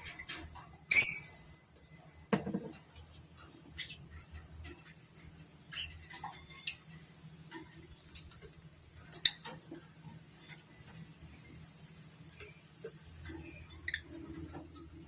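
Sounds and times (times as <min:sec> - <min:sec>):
high bird chirps: 0:00.9 - 0:01.4.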